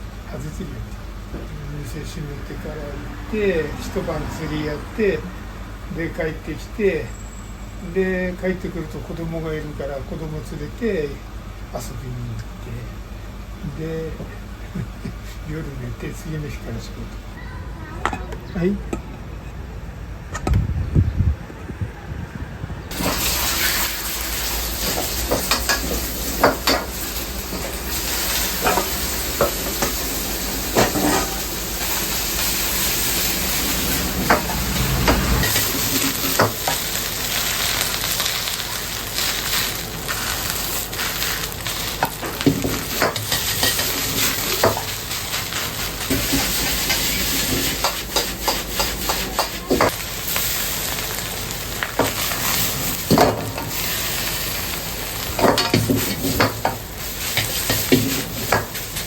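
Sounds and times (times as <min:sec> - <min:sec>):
wok sizzling: 0:00.0 - 0:01.3, 0:22.9 - 0:59.0.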